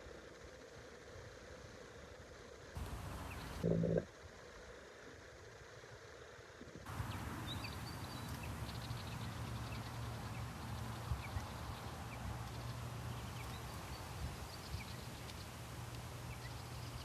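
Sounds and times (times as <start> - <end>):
wind buffeting microphone: 2.8 - 3.6, 6.9 - 17.0.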